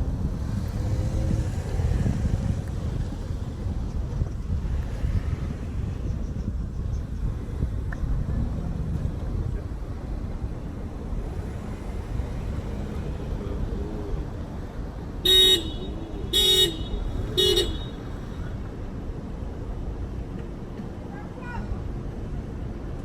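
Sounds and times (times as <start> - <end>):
low traffic rumble: 0.0 - 23.0
car horn honking: 15.2 - 18.4.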